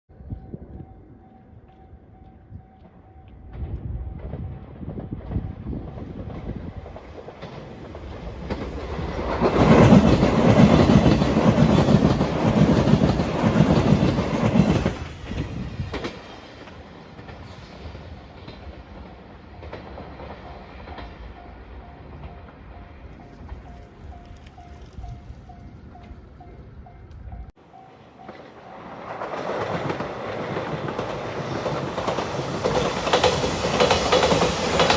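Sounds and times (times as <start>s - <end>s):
electric train passing at speed: 0.1s - 34.9s
faint level crossing bell: 20.5s - 28.9s.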